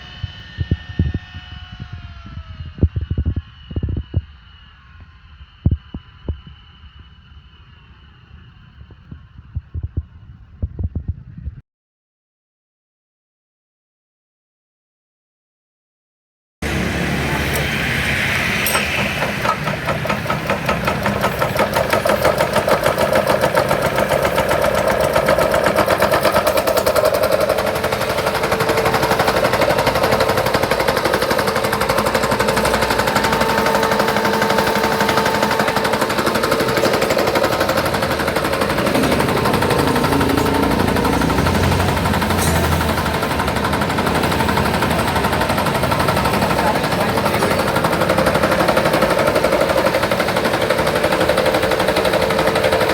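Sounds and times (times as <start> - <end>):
coffee mill grinding: 18.6 - 40.5.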